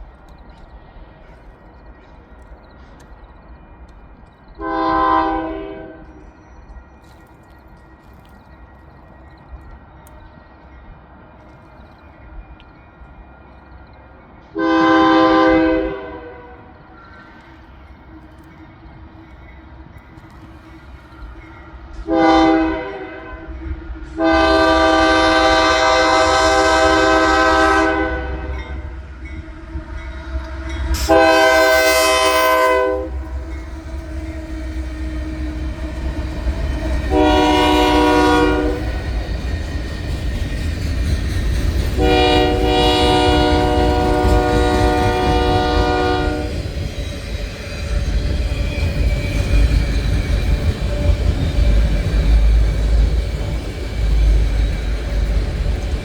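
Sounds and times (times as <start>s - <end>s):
train rumbling by: 0.0s - 56.0s
diesel locomotive air horn: 4.6s - 6.2s, 14.6s - 16.7s, 22.0s - 23.6s, 24.2s - 28.9s, 29.8s - 34.2s, 37.1s - 39.0s, 42.0s - 46.6s.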